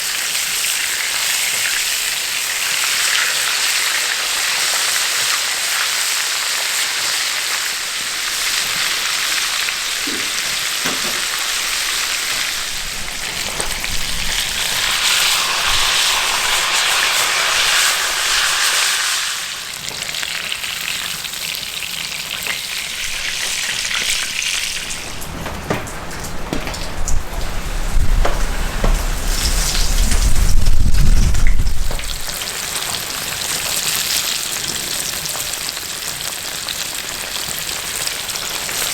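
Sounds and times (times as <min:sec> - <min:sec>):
food sizzling in hot oil: 0:00.0 - 0:25.0
low rumble with knocks: 0:23.4 - 0:32.4.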